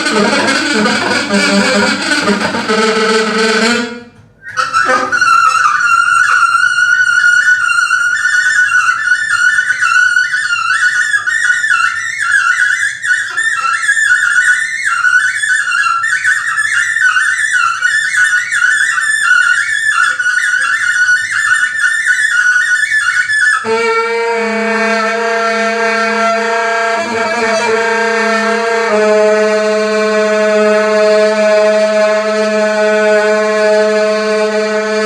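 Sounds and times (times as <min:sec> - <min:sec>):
high-pitched instrument melody: 0:00.0 - 0:06.6.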